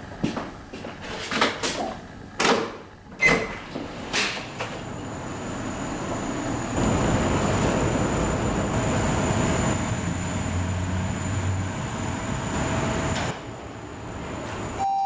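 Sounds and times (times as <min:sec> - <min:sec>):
vehicle engine rumble and hiss: 0:04.6 - 0:14.7.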